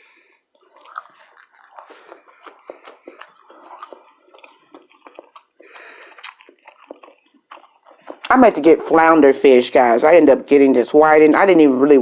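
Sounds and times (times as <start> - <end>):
person chewing food: 0.0 - 9.0.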